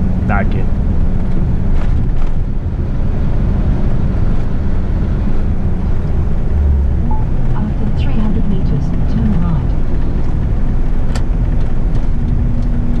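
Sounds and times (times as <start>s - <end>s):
road noise: 0.0s - 13.0s
truck diesel engine drone: 0.0s - 13.0s.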